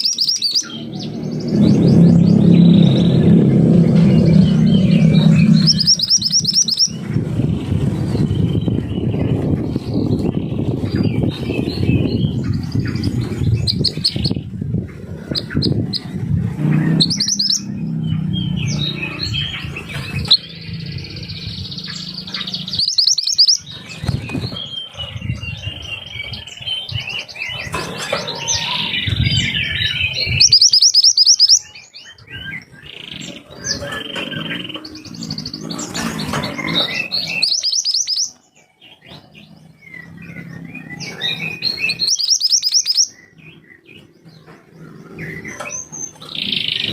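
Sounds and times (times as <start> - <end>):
songbird trills and chirps: 0.0 - 7.1, 16.9 - 46.9
low rumbling noise: 0.6 - 30.8.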